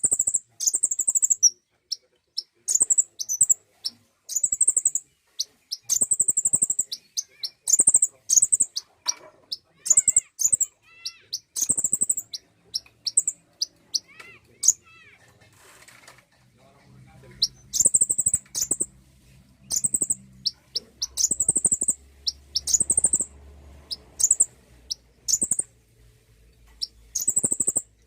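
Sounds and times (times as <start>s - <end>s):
bird trills and sharp chips: 0.0s - 14.8s, 17.4s - 18.9s, 19.7s - 23.3s, 24.2s - 25.7s, 26.8s - 27.9s.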